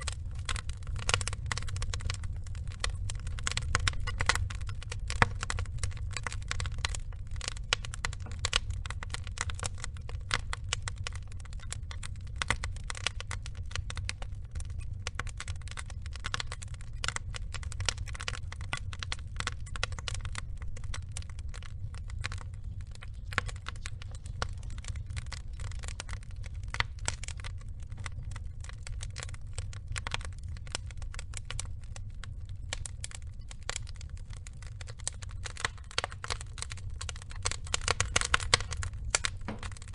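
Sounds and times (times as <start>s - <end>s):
logs snapping and crackling: 0.0s - 39.9s
low rumble of flames: 0.0s - 39.9s.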